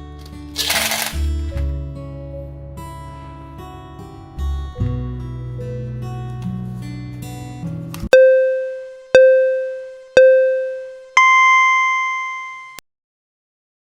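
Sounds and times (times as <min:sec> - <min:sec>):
electronic countdown beeps: 0:08.2 - 0:12.8.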